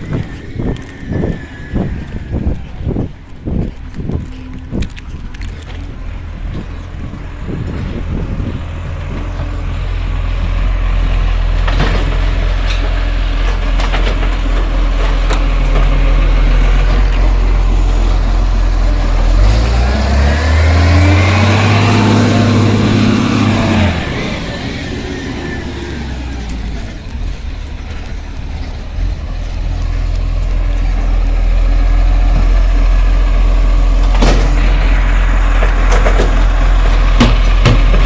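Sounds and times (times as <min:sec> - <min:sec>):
garbage truck diesel engine: 0:00.0 - 0:38.0
rising whine: 0:16.0 - 0:37.3
knocks: 0:37.2 - 0:38.0.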